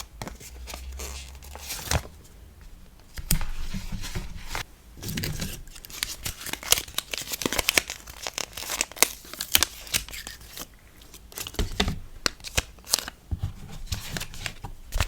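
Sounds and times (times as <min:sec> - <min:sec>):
packing materials tearing and crinkling: 0:05.0 - 0:13.2.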